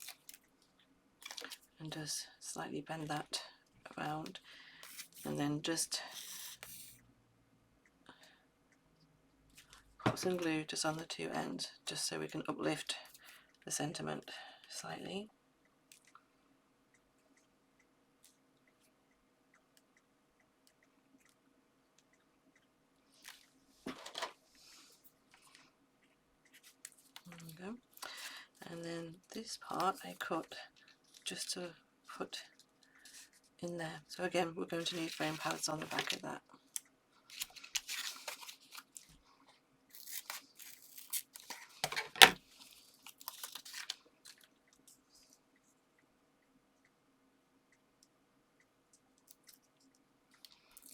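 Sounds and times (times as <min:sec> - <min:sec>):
paper rustling and crinkling: 0:00.0 - 0:00.4, 0:34.8 - 0:36.2, 0:37.3 - 0:39.2, 0:40.0 - 0:44.5.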